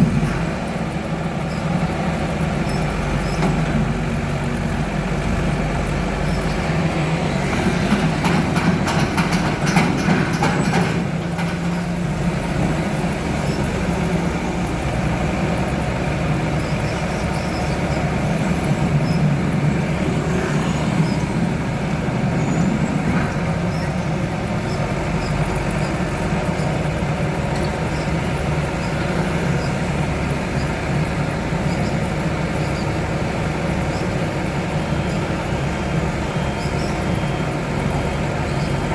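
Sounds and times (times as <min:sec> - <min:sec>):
diesel engine running: 0:00.0 - 0:38.9
metallic clanks and knocks: 0:07.6 - 0:11.7.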